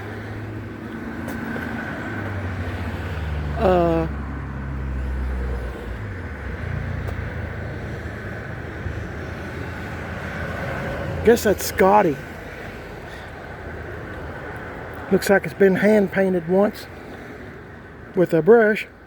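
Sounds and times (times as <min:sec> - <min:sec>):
highway traffic rumble: 0:00.0 - 0:19.0
short falling voice sound: 0:03.6 - 0:04.2.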